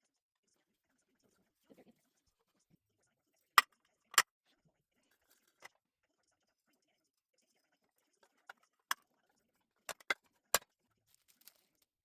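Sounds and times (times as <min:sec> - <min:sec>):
sharp clicks and knocks: 0:09.9 - 0:10.2.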